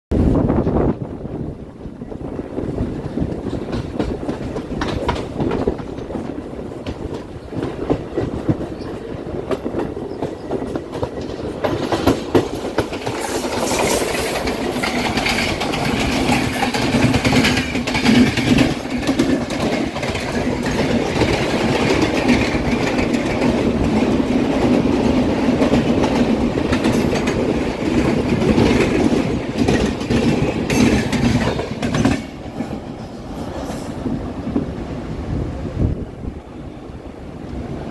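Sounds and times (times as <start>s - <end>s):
passing train hissing rattle: 2.2s - 37.9s
train wheels clacking over rail joints: 2.9s - 34.7s
rushing air: 20.4s - 37.9s.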